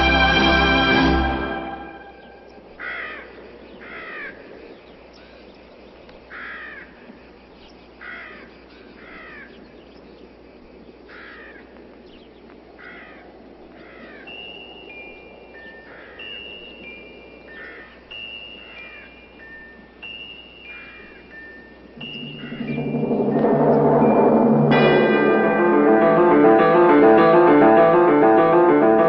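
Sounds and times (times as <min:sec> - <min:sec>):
orchestral music: 0:00.0 - 0:02.5, 0:22.0 - 0:29.0
bird cawing: 0:02.8 - 0:04.4, 0:06.3 - 0:07.0, 0:08.0 - 0:09.6, 0:11.1 - 0:11.7, 0:12.8 - 0:14.3, 0:15.8 - 0:16.5, 0:17.5 - 0:19.6.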